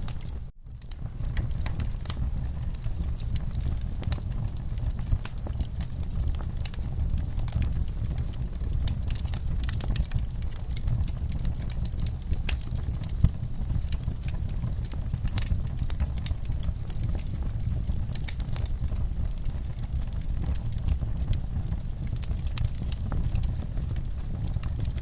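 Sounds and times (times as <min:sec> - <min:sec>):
low rumble of flames: 0:00.0 - 0:25.0
wood fire crackling: 0:00.0 - 0:25.0.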